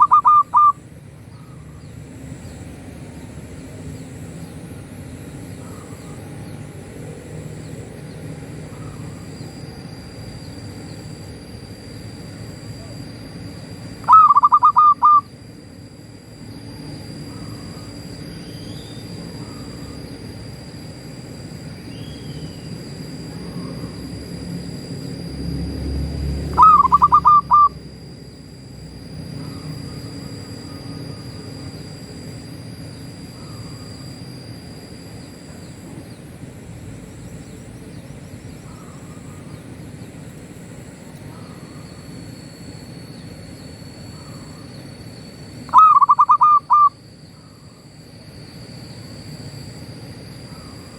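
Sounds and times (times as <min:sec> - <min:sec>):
dove cooing: 0:00.0 - 0:00.8, 0:14.0 - 0:15.3, 0:26.5 - 0:27.8, 0:45.7 - 0:47.7
steady high whine: 0:00.0 - 0:50.9.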